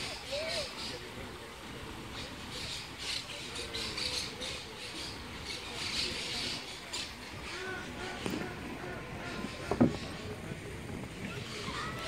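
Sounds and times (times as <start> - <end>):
distant voices: 0.0 - 12.0
birds squawking: 2.6 - 10.4.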